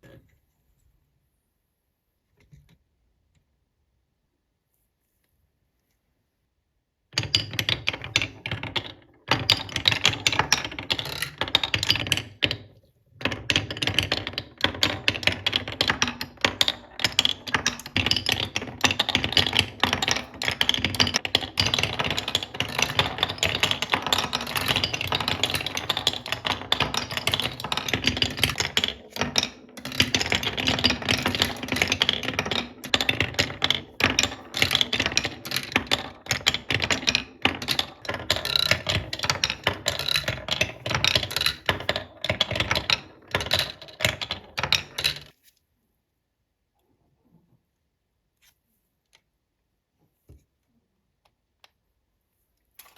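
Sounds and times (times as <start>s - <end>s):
marbles clattering down wooden run: 7.2s - 45.3s.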